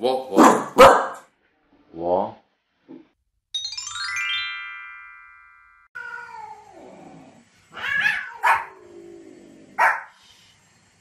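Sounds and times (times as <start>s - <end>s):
dog barking sharply: 0.4s - 1.3s, 9.8s - 10.1s
cat yowling: 6.0s - 6.9s, 7.7s - 9.0s.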